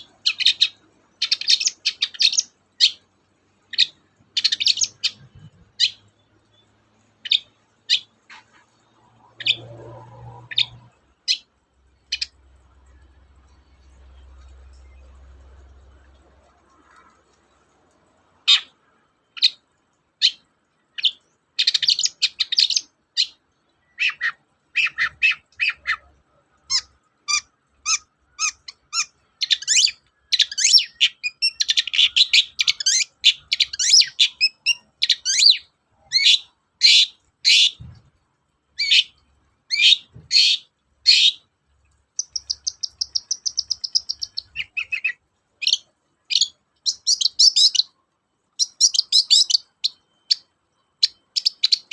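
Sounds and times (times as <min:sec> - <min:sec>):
bird singing harsh chirps and trills: 0:00.0 - 0:38.1, 0:38.7 - 0:41.5, 0:42.1 - 0:51.9.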